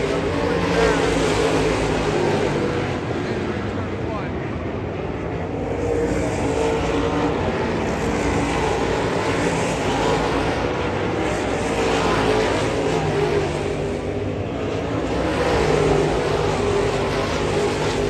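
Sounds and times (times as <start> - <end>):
race car engines running: 0.0 - 18.0.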